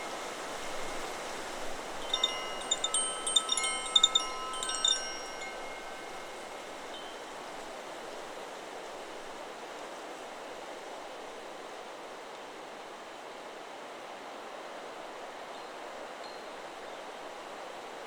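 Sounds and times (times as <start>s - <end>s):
wind and rustling trees: 0.0s - 18.0s
metal wind chime ringing: 2.0s - 7.3s.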